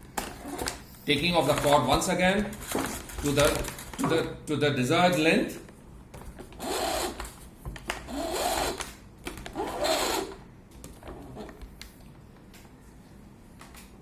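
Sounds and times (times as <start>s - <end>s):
vacuum cord reel whirring: 6.5s - 7.3s, 8.0s - 8.9s, 9.5s - 10.4s.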